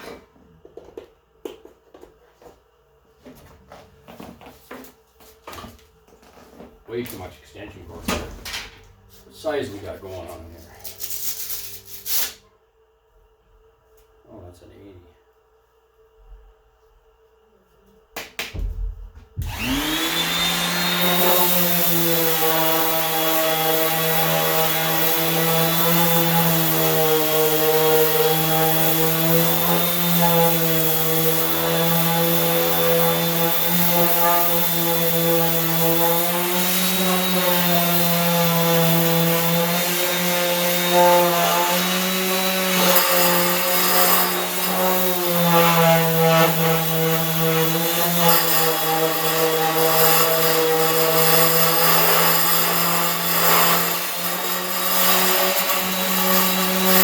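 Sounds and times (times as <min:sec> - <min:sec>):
electric sander on metal: 0:19.4 - 0:57.0.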